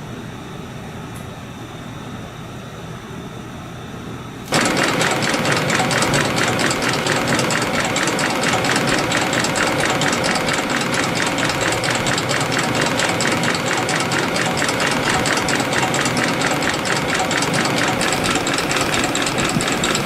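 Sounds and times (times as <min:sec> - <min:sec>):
low machine hum: 0:00.0 - 0:20.0
spring coiling machine clatter: 0:04.5 - 0:20.0.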